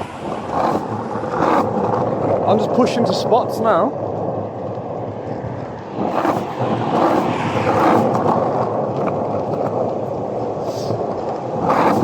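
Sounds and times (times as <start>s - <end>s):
skateboard wheels on rough road: 0.0s - 12.0s.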